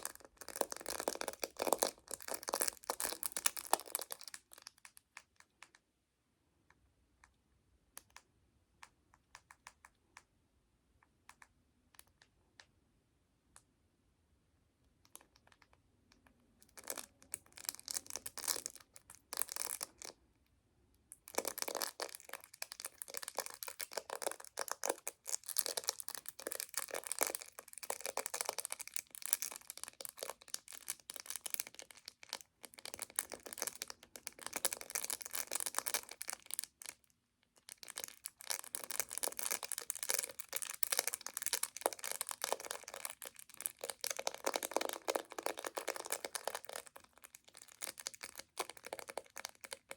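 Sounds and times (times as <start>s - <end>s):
chocolate wrapper crinkling: 0.0s - 5.1s, 16.7s - 20.1s, 21.3s - 49.9s.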